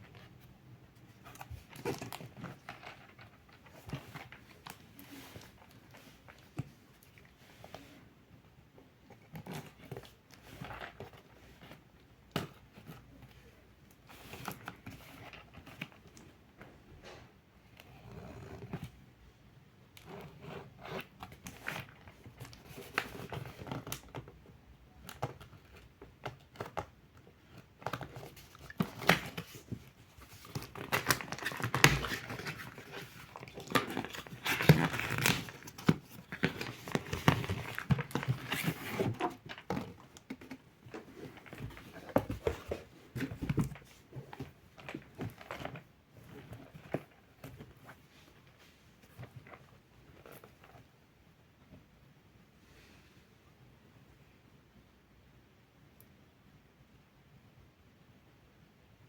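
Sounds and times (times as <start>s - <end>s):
plastic packaging crinkling: 27.9s - 47.2s
cardboard tearing: 30.4s - 40.6s.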